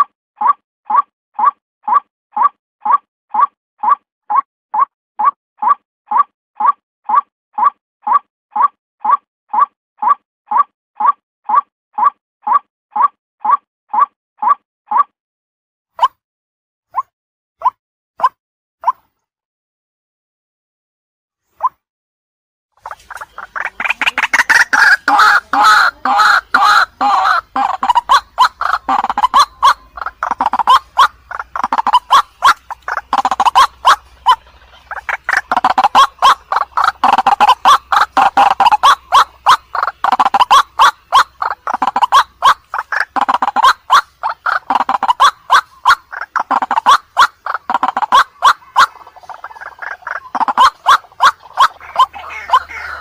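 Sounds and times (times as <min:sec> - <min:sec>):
waterhen calling: 0:22.8 - 0:53.0.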